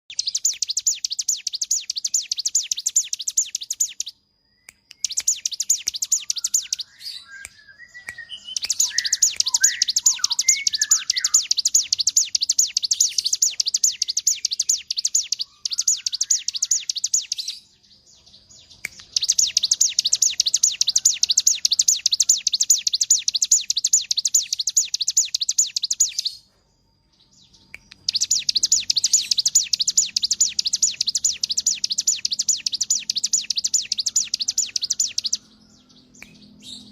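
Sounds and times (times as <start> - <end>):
lower bird chirps: 0.0 - 36.9
bird rapid rattling song: 0.1 - 4.2, 4.9 - 17.7, 18.6 - 26.4, 27.6 - 36.9.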